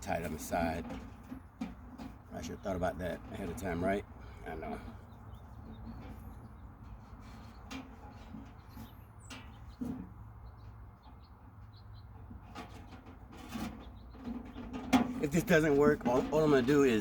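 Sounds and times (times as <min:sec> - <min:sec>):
low outdoor rumble: 0:13.0 - 0:17.0.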